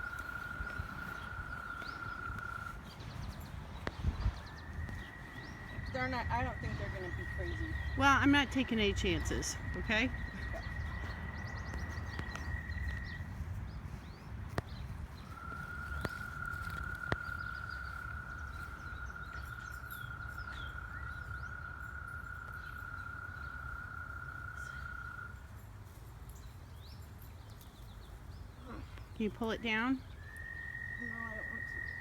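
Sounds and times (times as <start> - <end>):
low rumble: 0.0 - 21.5
birds chirping: 0.0 - 32.0.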